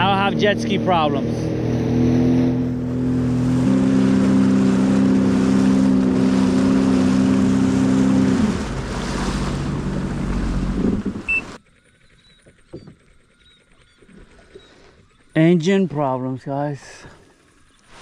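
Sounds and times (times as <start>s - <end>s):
jet ski engine running: 0.0s - 18.0s
wind: 0.0s - 18.0s
rushing water: 2.6s - 11.6s.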